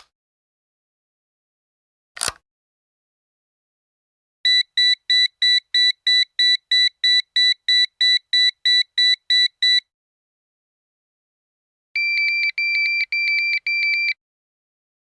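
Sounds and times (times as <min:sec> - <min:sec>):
high-pitched telephone beeps: 0:04.5 - 0:09.8, 0:12.0 - 0:14.2.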